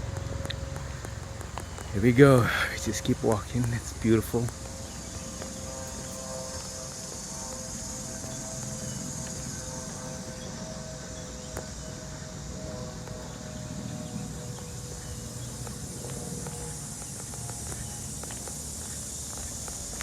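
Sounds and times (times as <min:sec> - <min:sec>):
faint footsteps on path: 0:00.0 - 0:20.0
high-pitched insect buzzing: 0:03.9 - 0:20.0.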